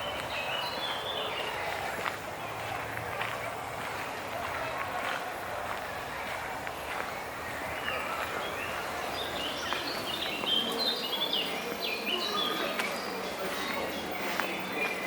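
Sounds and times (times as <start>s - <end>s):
songbirds chirping: 0.0s - 4.4s, 5.7s - 15.0s
outdoor ambient hum: 12.6s - 15.0s.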